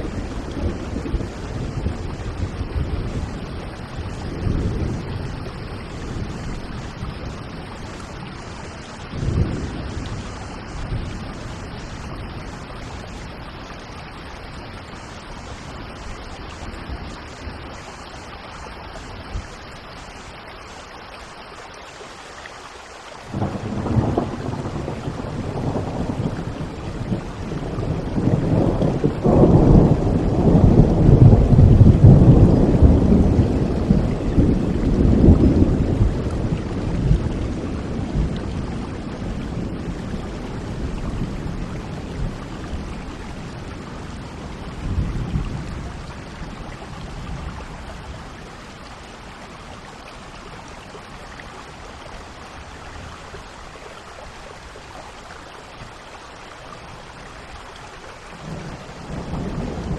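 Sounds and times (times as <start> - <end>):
rolling thunder: 0.0 - 7.8, 8.6 - 13.1, 23.3 - 48.4, 58.4 - 59.9
steady rain: 0.0 - 59.9.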